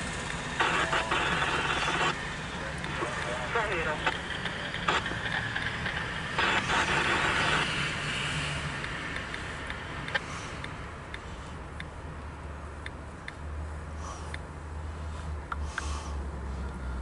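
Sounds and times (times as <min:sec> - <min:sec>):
train wheels rumbling and clattering: 0:02.8 - 0:07.7.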